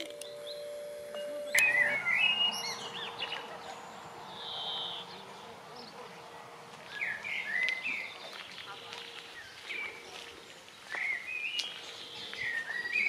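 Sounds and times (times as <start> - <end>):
faint steady hum: 0.0 - 6.8
songbirds singing and chirping: 0.0 - 13.0.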